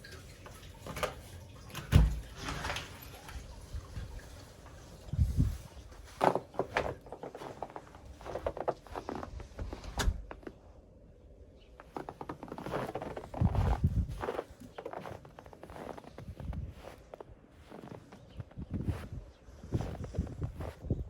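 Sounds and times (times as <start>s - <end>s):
footsteps crunching in snow: 5.2s - 9.8s, 11.8s - 21.0s.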